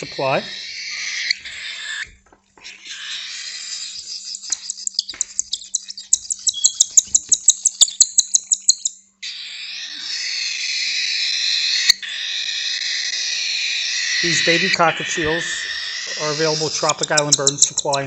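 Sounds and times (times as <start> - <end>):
raspy hissing begging chorus: 0.0 - 2.0, 9.2 - 18.0
baby birds chirping: 0.0 - 18.0.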